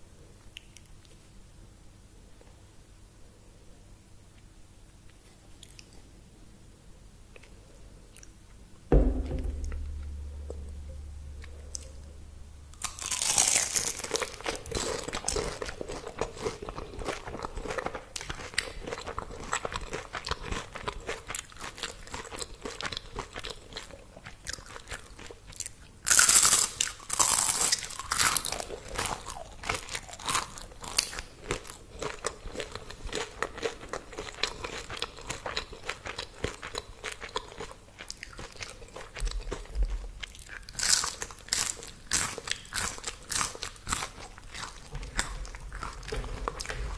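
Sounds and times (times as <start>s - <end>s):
crackly chewing: 5.0s - 6.1s, 12.8s - 46.9s
crunching bite: 12.7s - 23.8s, 26.1s - 38.4s.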